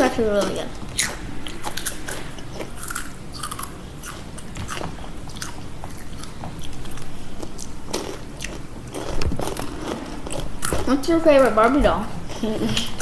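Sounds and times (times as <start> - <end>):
person chewing crunchy chips: 0.9 - 10.9.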